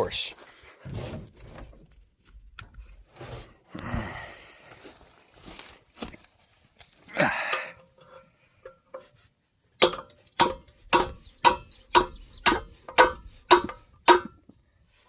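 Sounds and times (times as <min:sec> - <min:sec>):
metallic knocks on hubcap: 0:09.8 - 0:14.5.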